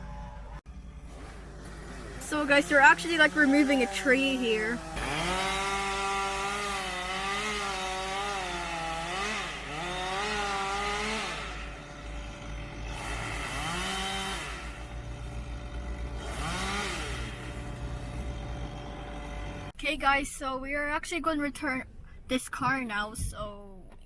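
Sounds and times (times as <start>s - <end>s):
chainsaw cutting and revving: 0.0s - 19.8s.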